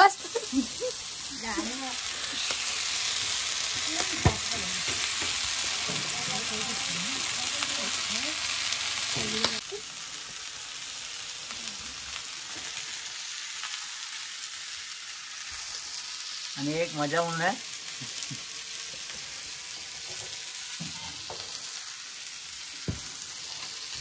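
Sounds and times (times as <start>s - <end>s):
chicken sizzling on a griddle: 0.0s - 24.0s.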